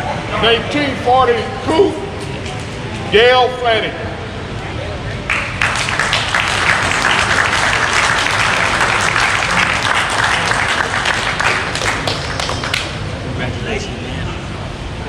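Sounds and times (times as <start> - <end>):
crowd applauding: 5.3 - 13.2.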